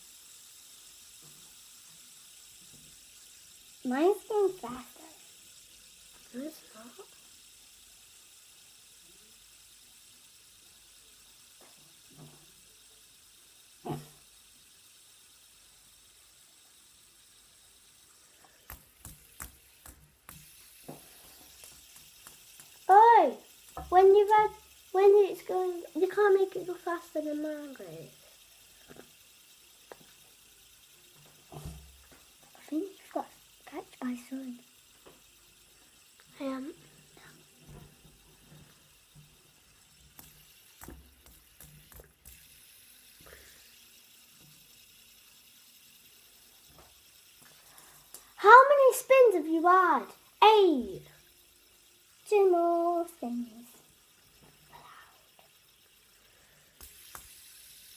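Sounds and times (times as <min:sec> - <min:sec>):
faint steady hiss: 0:00.0 - 0:57.9
fidget spinners clicking: 0:00.0 - 0:57.9.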